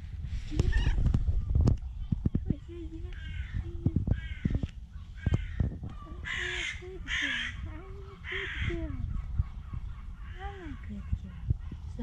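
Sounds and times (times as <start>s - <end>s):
faint low wavering bird calls: 0.3s - 12.0s
loud harsh bird caws: 3.2s - 10.9s.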